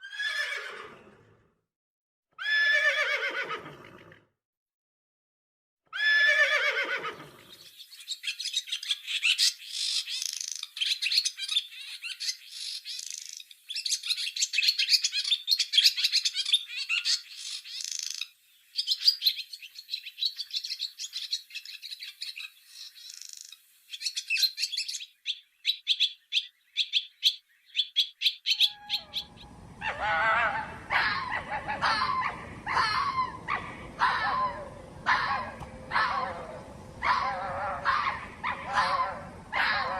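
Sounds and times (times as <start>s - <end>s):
swallows twittering: 7.4s - 39.1s
fox yipping: 28.5s - 39.9s.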